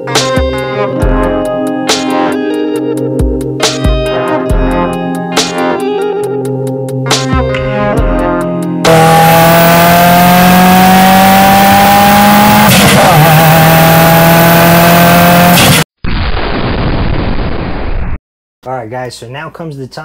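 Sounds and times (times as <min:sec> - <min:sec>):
car engine accelerating: 0:08.8 - 0:15.8
loud explosion rumble: 0:16.0 - 0:18.2.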